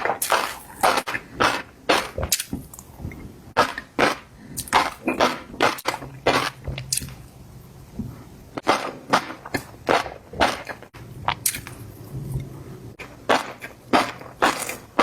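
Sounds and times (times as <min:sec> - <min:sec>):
crunchy bites and chewing: 0:00.0 - 0:02.8, 0:03.6 - 0:07.2, 0:13.0 - 0:15.0.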